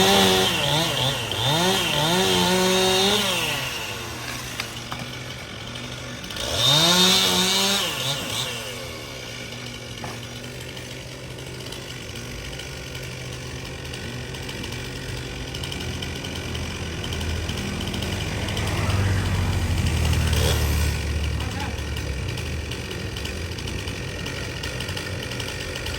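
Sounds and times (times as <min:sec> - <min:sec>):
chainsaw revving and idling: 0:00.0 - 0:25.9
low engine sound: 0:16.0 - 0:25.0.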